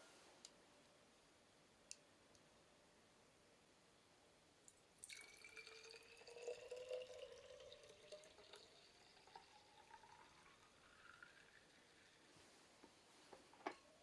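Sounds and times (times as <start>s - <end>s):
liquid pouring into vessel: 5.0s - 12.3s.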